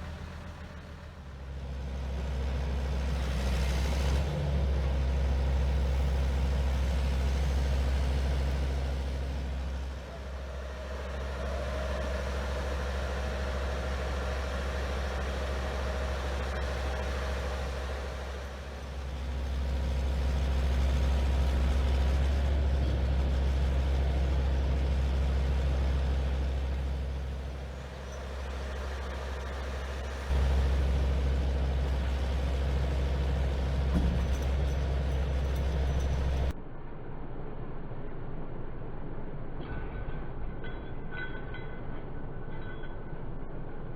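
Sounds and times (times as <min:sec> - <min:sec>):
diesel truck engine running: 0:00.0 - 0:36.6.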